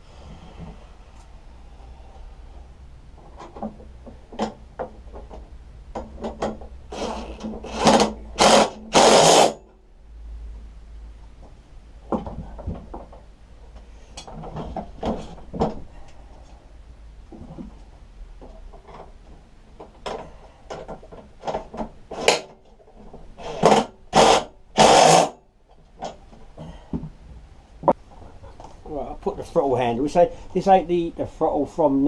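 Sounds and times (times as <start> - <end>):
power tool running: 6.9 - 9.6, 23.5 - 25.4.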